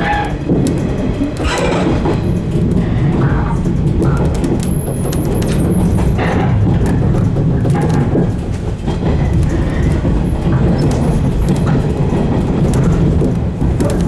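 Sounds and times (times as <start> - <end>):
electric train rumbling: 0.0 - 14.0
wheels clicking over rails: 0.0 - 14.0.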